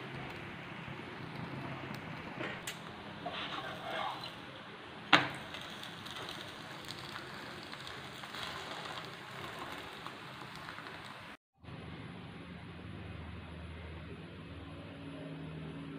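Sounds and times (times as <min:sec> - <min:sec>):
dough sizzling in oil: 0:00.0 - 0:11.4.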